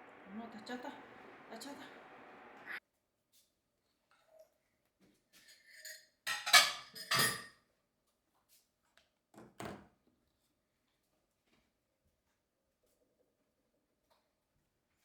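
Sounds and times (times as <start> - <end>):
dishes clinking and clattering: 5.4 - 7.6.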